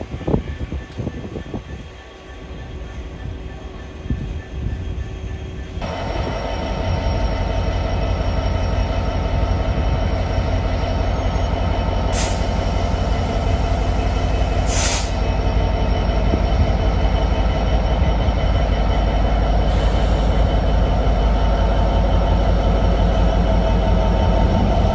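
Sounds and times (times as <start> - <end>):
train rumbling: 0.0 - 24.9
short hisses: 14.6 - 15.2.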